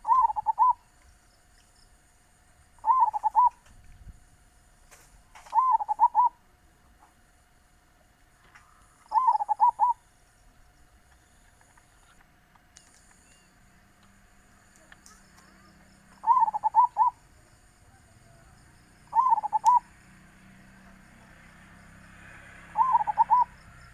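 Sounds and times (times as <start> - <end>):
dove cooing: 0.0 - 0.8, 2.8 - 3.6, 5.4 - 6.4, 9.1 - 10.0, 15.1 - 17.3, 18.0 - 20.0, 22.6 - 23.9.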